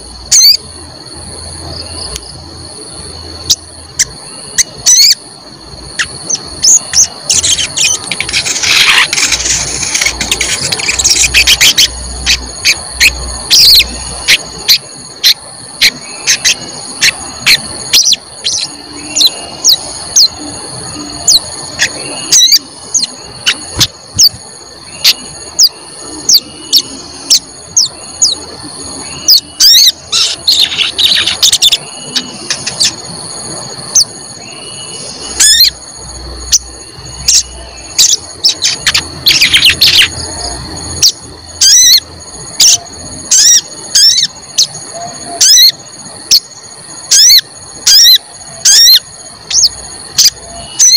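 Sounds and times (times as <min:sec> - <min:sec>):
steady high-pitched tone: 0:00.0 - 0:50.9.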